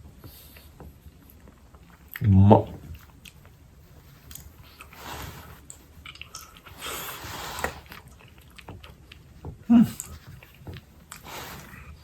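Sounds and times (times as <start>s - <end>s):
person chewing: 4.2s - 12.0s.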